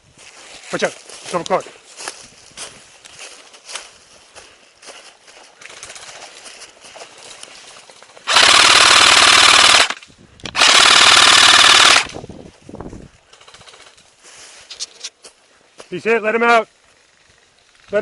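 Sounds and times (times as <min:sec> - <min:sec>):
airsoft rifle firing full-auto bursts: 0:08.2 - 0:12.2.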